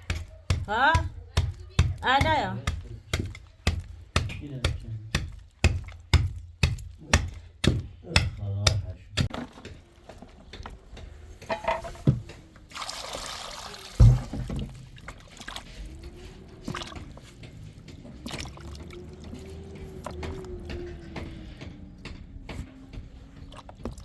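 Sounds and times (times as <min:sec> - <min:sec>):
liquid being poured: 0:12.7 - 0:15.7
heavy thump: 0:14.0 - 0:14.8.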